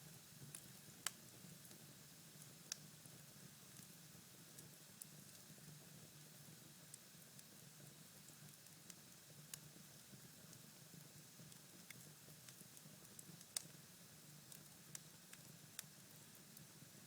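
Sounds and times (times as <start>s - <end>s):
faint fire hiss: 0.0s - 17.0s
fire crackling and popping: 0.4s - 1.8s, 2.4s - 2.9s, 14.5s - 16.3s.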